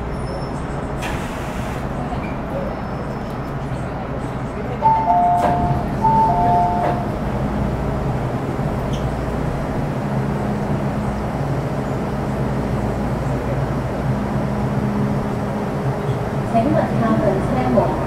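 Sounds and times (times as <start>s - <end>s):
train equipment low hum: 0.0s - 18.0s
two-tone door chime: 4.8s - 7.1s.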